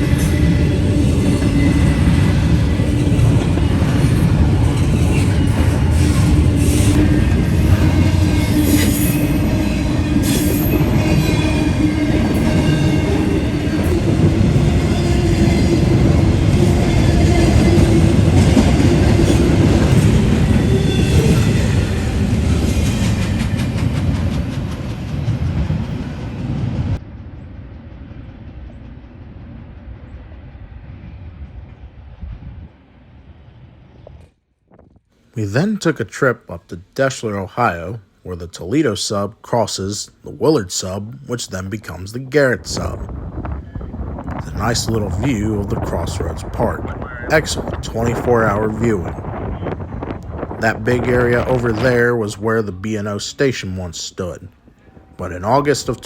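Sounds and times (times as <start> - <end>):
train wheel squeal: 0.0 - 24.6
freight train rumbling past: 0.0 - 34.2, 35.3 - 56.0
outdoor background: 0.0 - 56.0.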